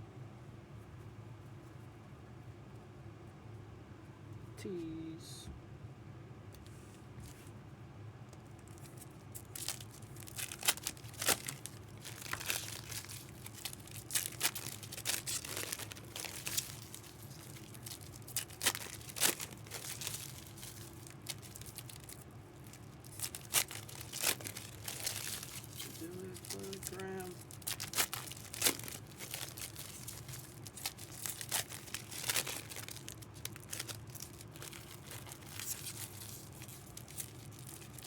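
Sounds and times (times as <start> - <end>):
low steady hum: 0.0 - 38.0
card wrappers crinkling: 8.4 - 38.0.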